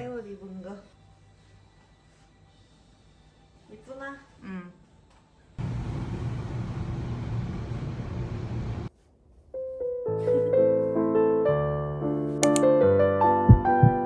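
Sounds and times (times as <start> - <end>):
piano melody: 9.6 - 14.0.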